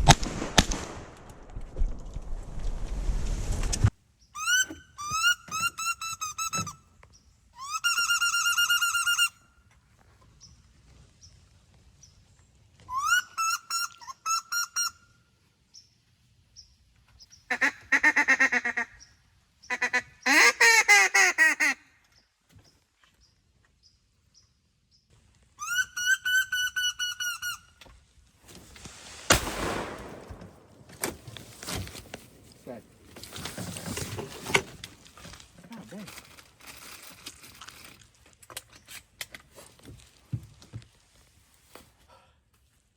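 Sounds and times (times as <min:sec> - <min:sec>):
brief rush of noise: 0:00.0 - 0:03.9
ducks calling: 0:17.5 - 0:21.9.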